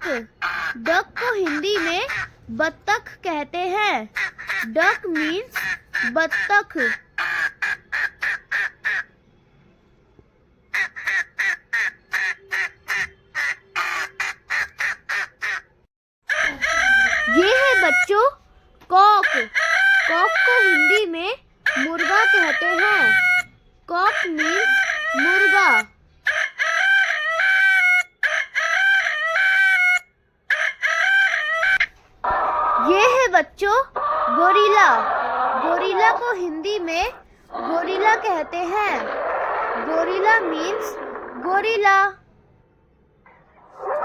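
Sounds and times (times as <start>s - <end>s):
duck quacking: 10.8s - 15.7s, 21.7s - 26.7s
rooster crowing: 16.3s - 17.9s, 19.2s - 21.0s, 21.7s - 23.4s.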